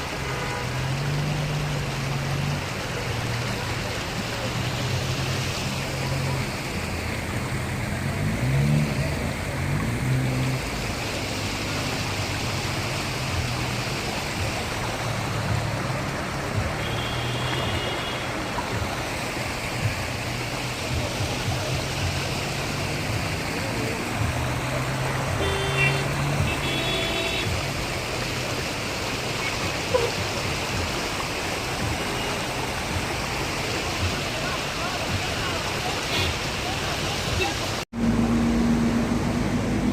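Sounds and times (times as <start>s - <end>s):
heavy rain and rushing floodwater: 0.0s - 39.9s
low vehicle engine hum: 37.9s - 39.9s.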